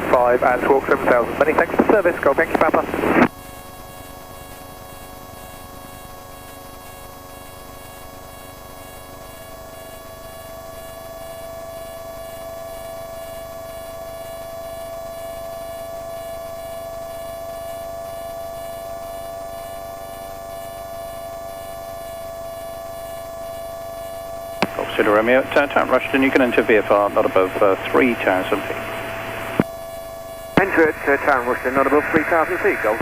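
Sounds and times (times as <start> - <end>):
light aircraft engine droning: 0.0 - 9.3, 24.6 - 33.0.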